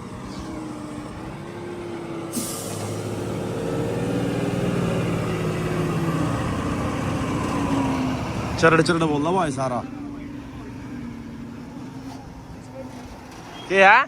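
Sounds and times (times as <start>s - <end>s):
tractor diesel engine revving: 0.0s - 13.4s
short sharp hiss: 2.3s - 3.0s.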